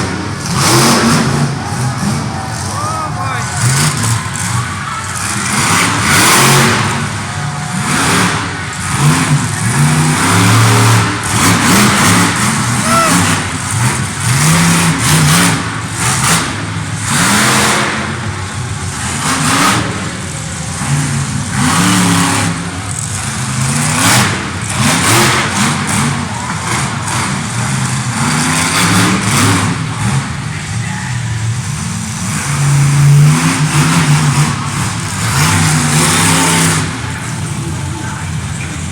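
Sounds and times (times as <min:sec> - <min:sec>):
monster truck engine revving: 0:00.0 - 0:38.9.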